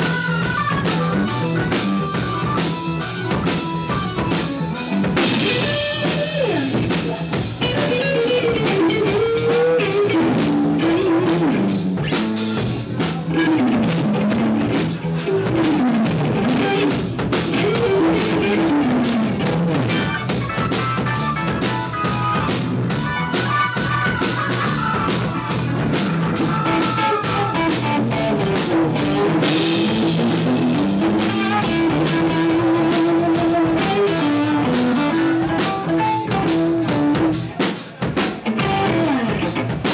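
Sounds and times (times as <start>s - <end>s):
drum kit: 0.0s - 39.9s
guitar: 0.0s - 39.9s.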